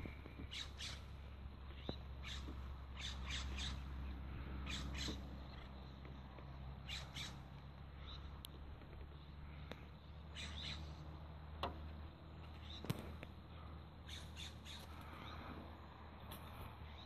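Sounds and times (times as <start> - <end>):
steady low rumble: 0.0 - 14.2
birds squawking: 0.4 - 5.8, 6.8 - 8.4, 10.2 - 11.0, 14.0 - 15.5.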